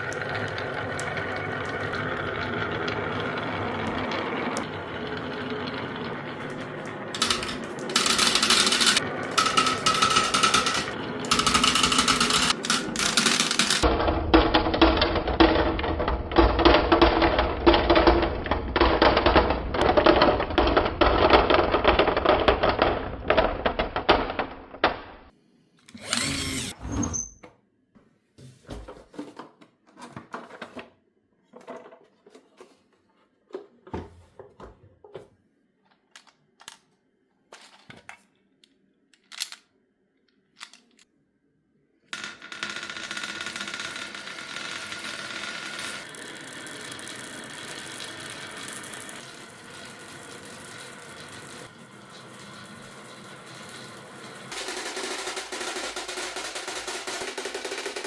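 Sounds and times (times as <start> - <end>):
marbles rattling down wooden run: 2.6 - 24.3, 42.2 - 58.0
steady whirring: 25.9 - 27.0.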